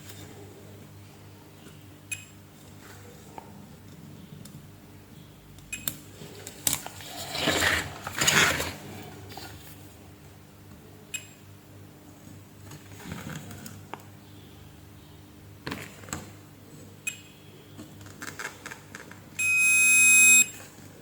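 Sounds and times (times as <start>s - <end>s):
loud electronic beep: 19.4s - 20.5s.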